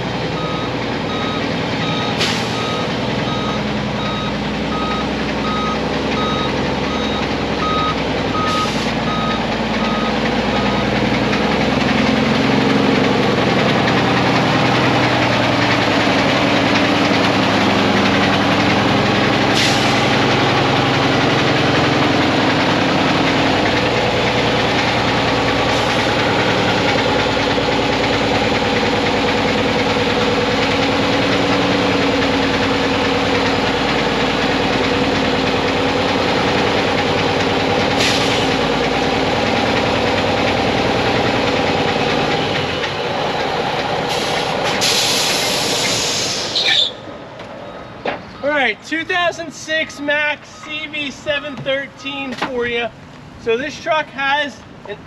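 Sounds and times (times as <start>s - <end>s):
diesel truck engine running: 0.0s - 55.0s
reversing alarm beeping: 0.4s - 11.0s, 49.9s - 52.1s.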